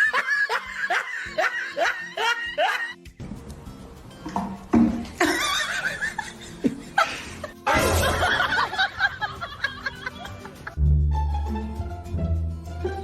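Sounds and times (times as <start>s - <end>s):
people laughing: 0.0s - 3.0s, 5.2s - 10.8s.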